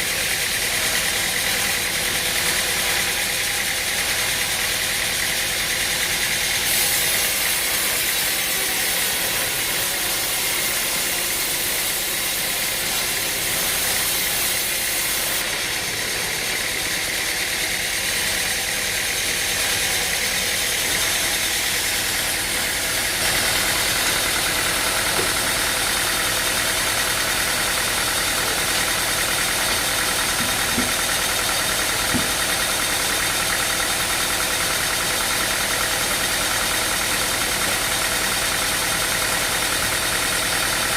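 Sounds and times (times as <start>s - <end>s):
machinery engine running: 0.0s - 40.9s.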